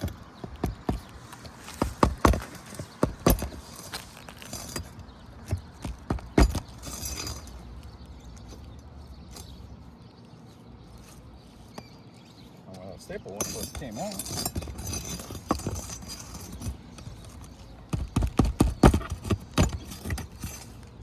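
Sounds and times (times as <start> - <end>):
hand tool knocking on shingles: 0.0 - 3.8, 5.4 - 7.4, 13.3 - 21.0
faint steady background noise: 0.0 - 21.0.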